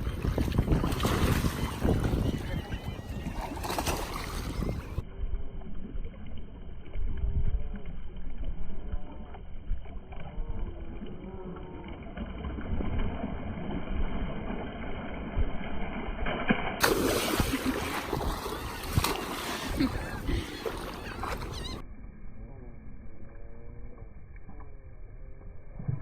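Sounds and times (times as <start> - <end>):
wind buffeting microphone: 0.0 - 5.0, 16.9 - 21.8.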